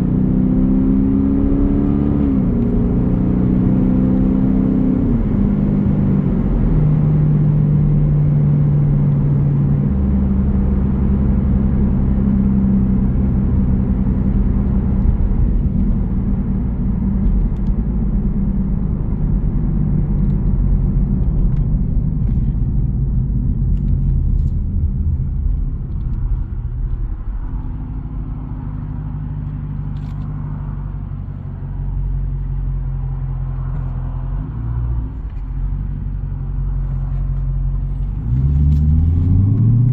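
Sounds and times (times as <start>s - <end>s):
v eight exhaust rumbling: 0.0s - 39.9s.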